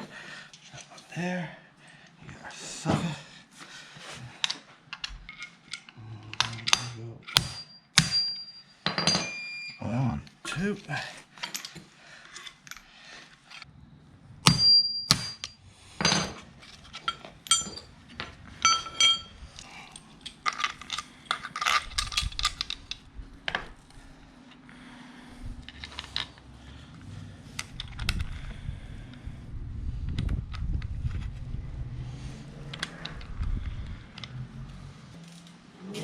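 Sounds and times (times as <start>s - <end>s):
metal tools clinking: 4.4s - 9.8s, 11.4s - 12.9s, 14.5s - 23.0s
ringing metal strikes: 6.7s - 9.7s, 14.5s - 16.2s.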